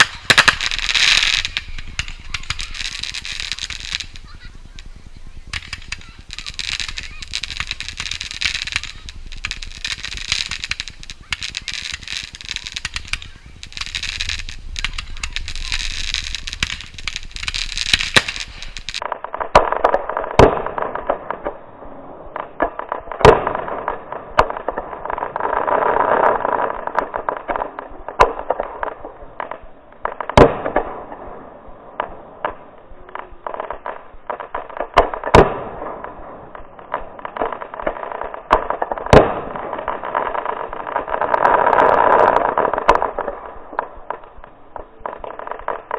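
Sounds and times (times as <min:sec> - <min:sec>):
steady rushing noise: 0:00.0 - 0:19.0
fireworks bangs: 0:00.0 - 0:45.9
fireworks crackling: 0:00.0 - 0:45.9.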